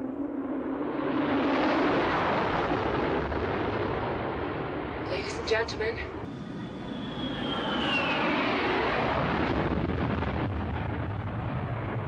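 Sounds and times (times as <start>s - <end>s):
jet engine rush: 0.0s - 12.0s
jet engine whine: 0.0s - 12.0s.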